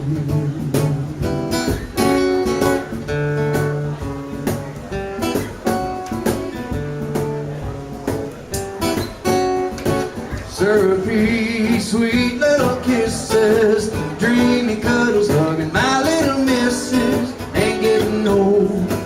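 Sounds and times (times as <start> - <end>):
acoustic guitar strumming: 0.0 - 19.0
cajon tapping: 0.0 - 19.0.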